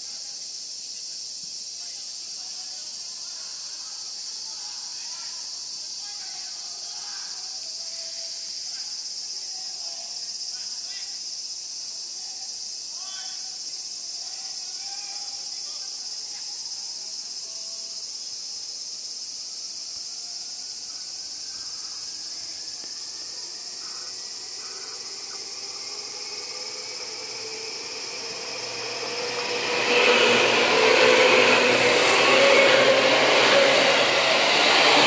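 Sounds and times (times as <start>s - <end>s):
insect drone: 0.0s - 35.0s
electric train motor whine: 21.2s - 35.0s
train wheels on rails: 21.4s - 35.0s.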